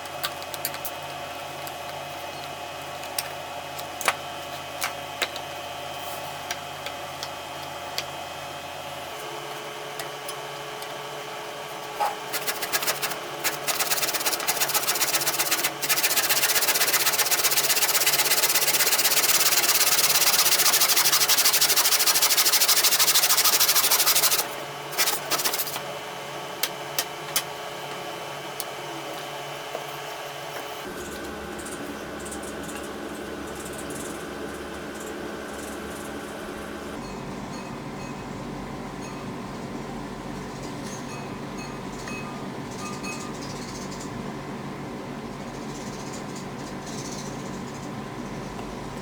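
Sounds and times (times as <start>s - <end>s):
small electric power tool running: 12.3s - 25.9s.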